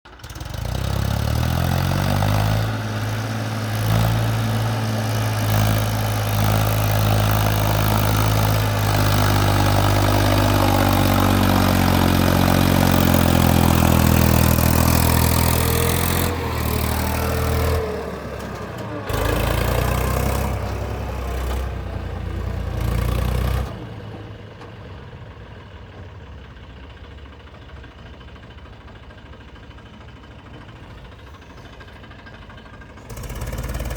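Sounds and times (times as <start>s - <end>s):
tractor diesel engine revving: 0.1s - 25.2s, 31.9s - 33.9s.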